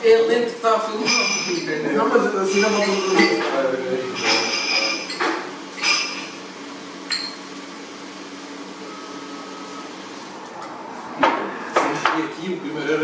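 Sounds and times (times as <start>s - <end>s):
bar room hum: 0.0s - 13.0s
glass clinking: 7.1s - 7.4s.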